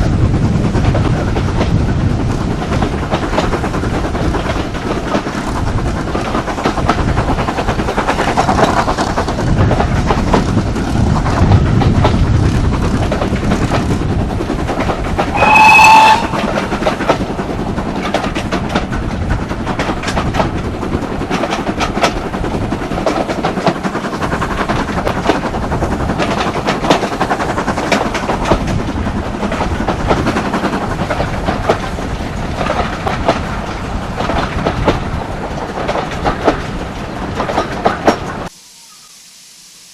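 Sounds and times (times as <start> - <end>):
train rolling: 0.0 - 39.9
rail-joint clicks: 0.7 - 38.5
locomotive horn blast: 15.3 - 16.6.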